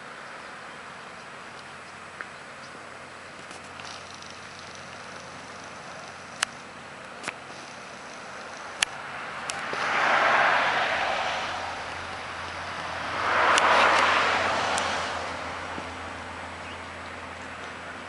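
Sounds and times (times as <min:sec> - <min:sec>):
steady low hum: 0:00.0 - 0:18.0
vehicles passing by: 0:00.0 - 0:18.0.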